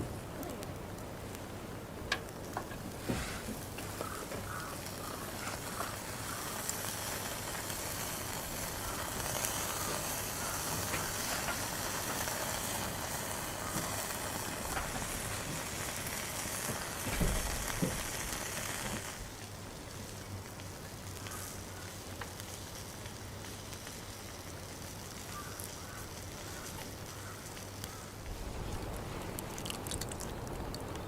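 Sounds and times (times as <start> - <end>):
food sizzling in hot oil: 3.6 - 19.4.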